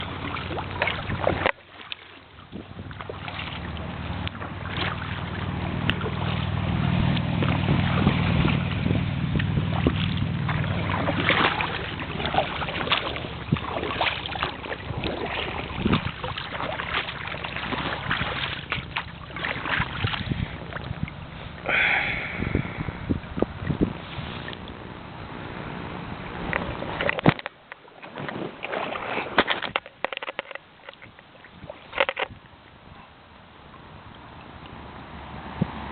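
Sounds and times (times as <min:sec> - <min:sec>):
paddle strokes splashing water: 0:00.0 - 0:35.9
low rumble: 0:02.6 - 0:27.1.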